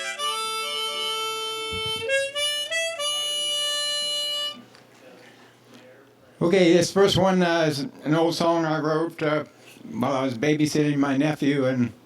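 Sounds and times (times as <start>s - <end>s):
harmonica playing: 0.0s - 4.7s.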